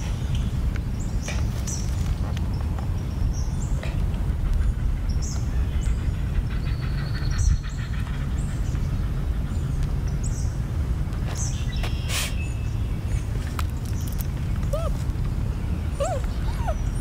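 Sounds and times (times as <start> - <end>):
steady low rumble: 0.0 - 17.0
birds chirping: 11.3 - 17.0.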